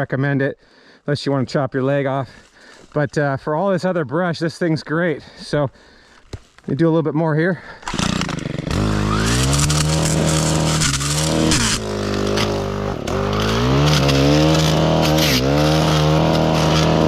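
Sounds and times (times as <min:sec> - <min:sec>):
brushcutter cutting brush: 0:07.8 - 0:17.0
brushcutter engine revving: 0:07.8 - 0:17.0.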